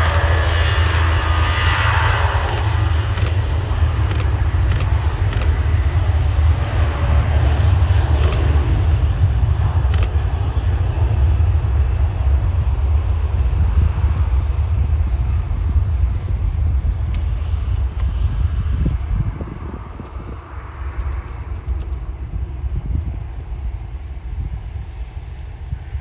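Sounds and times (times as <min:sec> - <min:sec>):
faint short clicks: 0:00.0 - 0:05.5, 0:08.2 - 0:08.4, 0:09.9 - 0:10.2, 0:13.0 - 0:13.5, 0:21.0 - 0:22.0
jet engine whine: 0:00.0 - 0:26.0.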